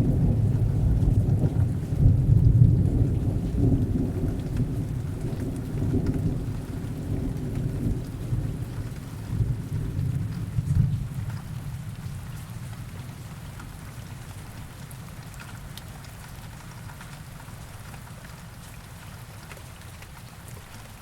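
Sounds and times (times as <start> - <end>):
distant thunder rumbling: 0.0 - 11.7
rain falling: 0.0 - 21.0.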